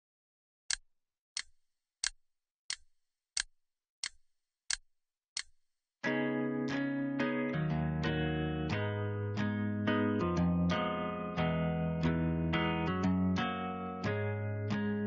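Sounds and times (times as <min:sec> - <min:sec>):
sharp dry clicks: 0:01.4 - 0:05.7
plucked guitar music: 0:06.0 - 0:15.0.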